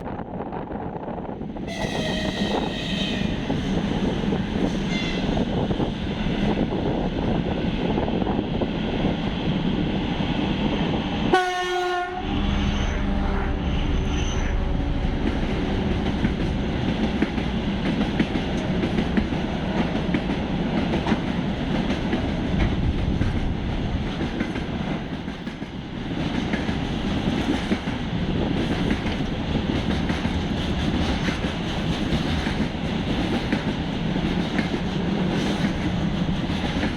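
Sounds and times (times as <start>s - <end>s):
locomotive horn blast: 1.7s - 3.4s, 11.3s - 15.2s
train wheels clattering on rails: 15.1s - 36.9s.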